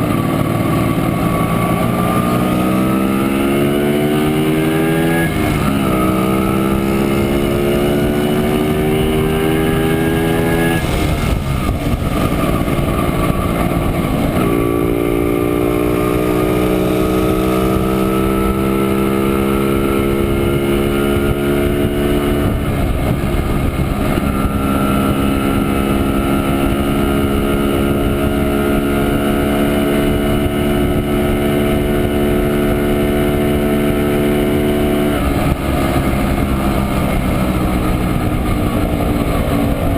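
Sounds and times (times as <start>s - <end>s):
two-stroke motorcycle engine running: 0.0s - 39.9s.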